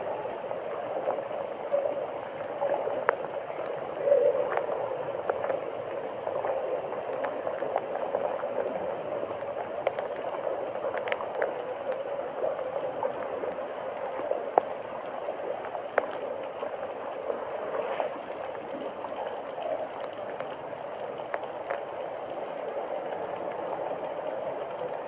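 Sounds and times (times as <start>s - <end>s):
floodwater flowing and gurgling: 0.0s - 25.0s
small clicks: 7.1s - 12.6s.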